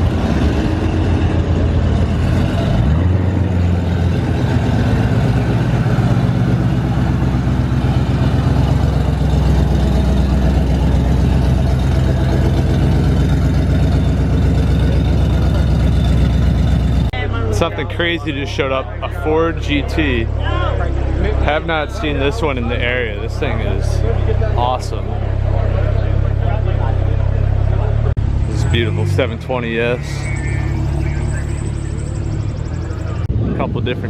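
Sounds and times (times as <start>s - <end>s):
car engine running at low revs: 0.0s - 34.0s.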